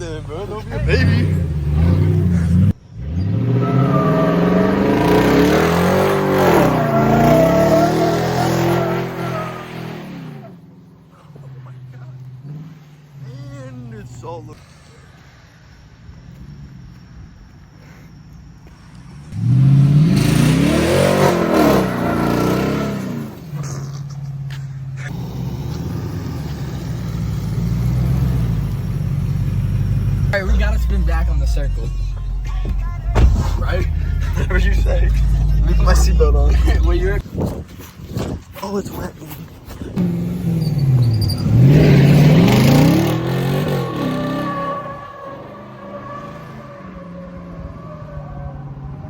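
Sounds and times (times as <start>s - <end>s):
pickup truck engine revving: 0.0s - 10.8s, 19.3s - 37.2s, 40.0s - 47.2s.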